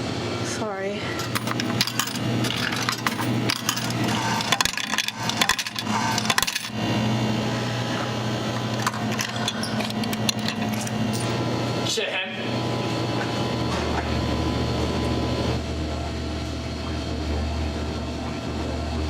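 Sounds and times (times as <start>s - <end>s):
steady low hum: 0.0s - 19.0s
coins clinking into vending machine: 1.2s - 6.8s, 8.6s - 11.4s.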